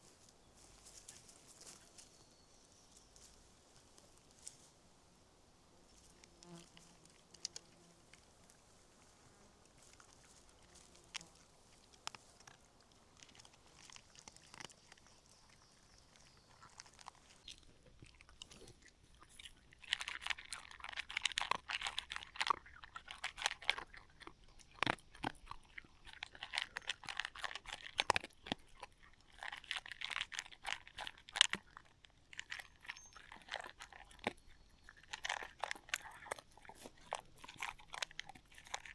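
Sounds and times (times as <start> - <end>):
crunchy chewing: 0.0 - 38.9
faint ticks: 6.0 - 15.6.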